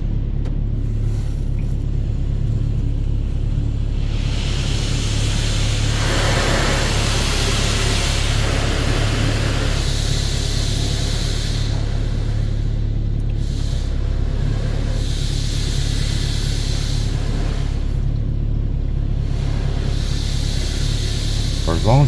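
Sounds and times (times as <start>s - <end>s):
car wash water spray hissing: 0.7s - 22.0s
steady low hum: 20.6s - 22.0s.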